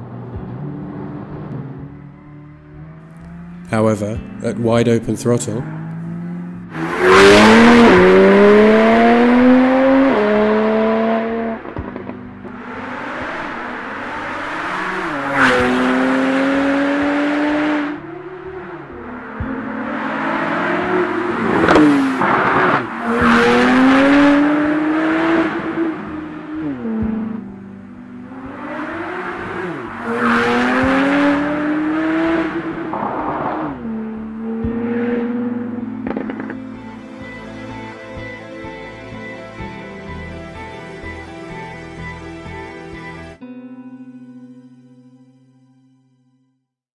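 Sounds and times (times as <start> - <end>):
car engine accelerating: 0.0 - 43.3
exhaust crack on upshift: 35.6 - 36.7.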